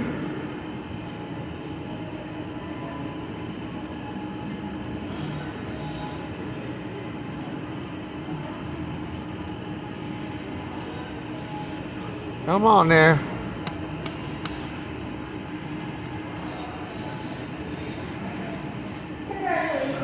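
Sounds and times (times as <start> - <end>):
slot machine noise: 2.2 - 3.9, 9.4 - 10.5, 12.5 - 18.4.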